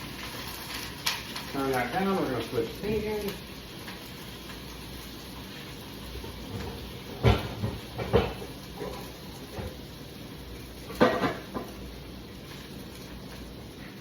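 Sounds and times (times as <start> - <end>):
pots clunking on stovetop: 6.2 - 9.9, 10.8 - 11.9.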